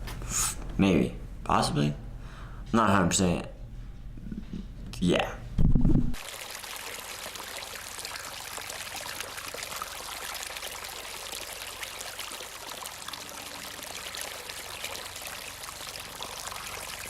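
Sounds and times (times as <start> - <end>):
rushing water: 6.2 - 17.0.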